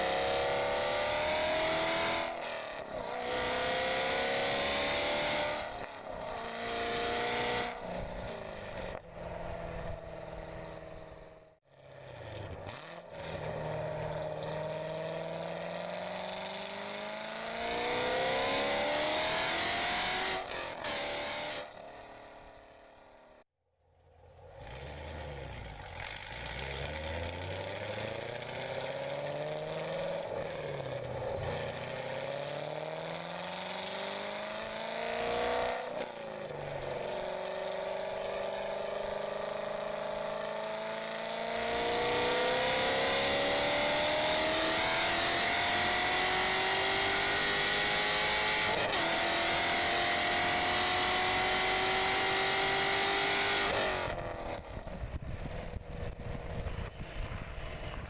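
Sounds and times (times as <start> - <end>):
car engine accelerating: 0.0 - 23.4, 24.0 - 58.0
road and wind noise: 0.0 - 58.0.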